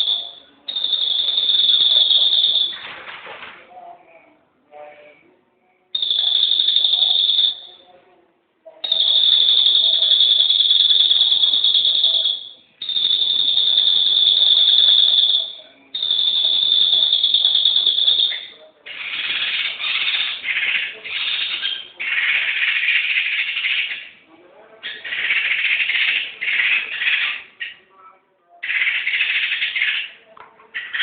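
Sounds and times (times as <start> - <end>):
high whistled bird notes: 0.0 - 2.9, 6.0 - 7.8, 8.8 - 24.1
buzzy rattling bird phrases: 0.0 - 31.0.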